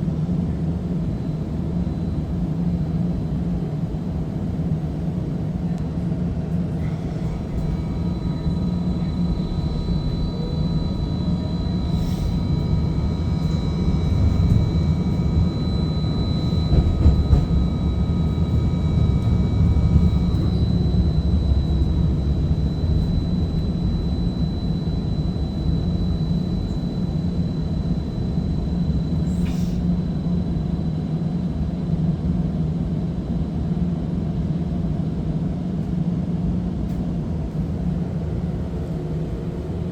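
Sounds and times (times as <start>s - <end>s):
streetcar low rumble: 0.0s - 39.9s
electric drive whine: 6.8s - 32.2s.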